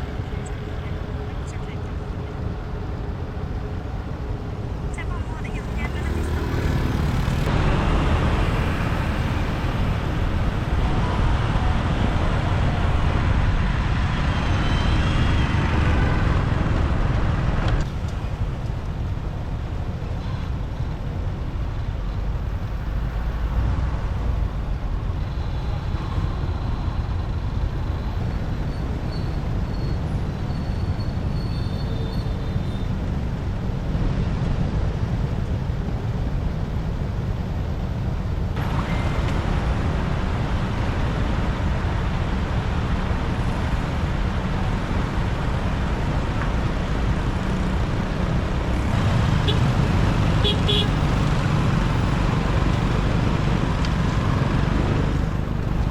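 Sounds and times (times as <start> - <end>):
city traffic: 0.0 - 55.9
wind and road noise: 0.0 - 55.9
motorbike engine: 47.5 - 55.9.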